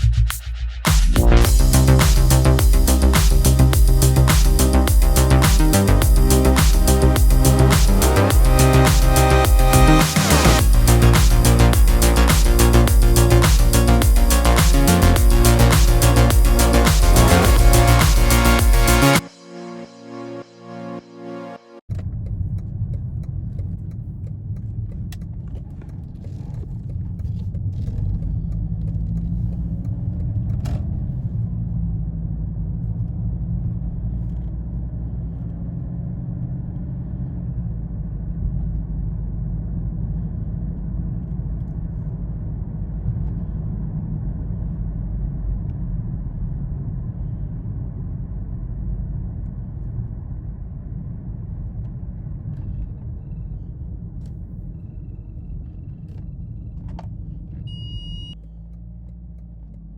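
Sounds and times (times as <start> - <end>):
car engine: 0.9 - 19.3.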